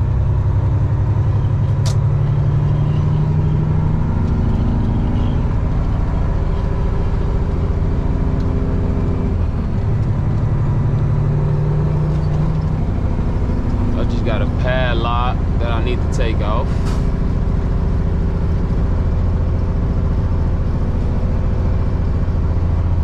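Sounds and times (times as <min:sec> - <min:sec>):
diesel truck engine running: 0:00.0 - 0:23.0
sharp click: 0:01.8 - 0:02.1.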